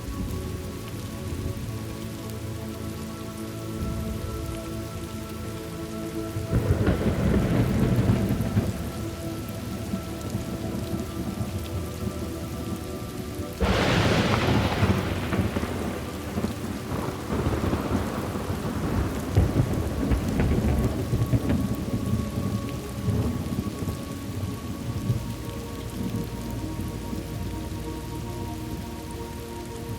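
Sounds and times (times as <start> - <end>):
rain falling: 0.0 - 29.9
rumbling thunderclap: 6.4 - 12.2, 13.6 - 25.4.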